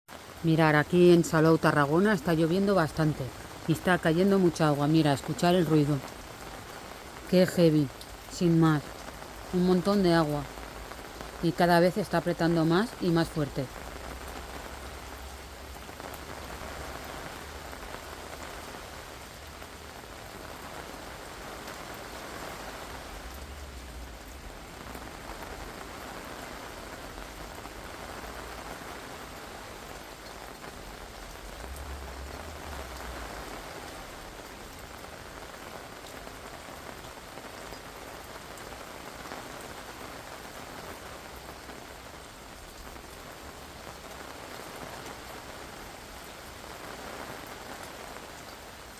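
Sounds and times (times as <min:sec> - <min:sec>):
heavy rain: 0:00.1 - 0:48.9.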